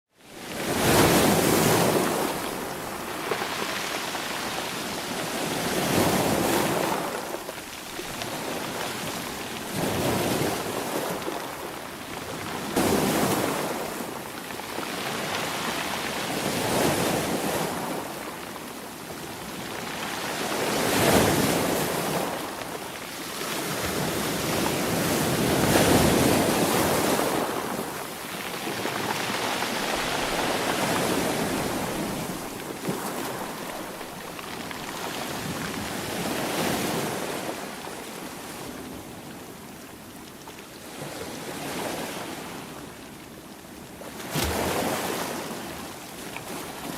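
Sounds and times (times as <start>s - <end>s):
sea waves breaking: 0.4s - 14.3s, 19.8s - 39.2s, 44.1s - 46.9s.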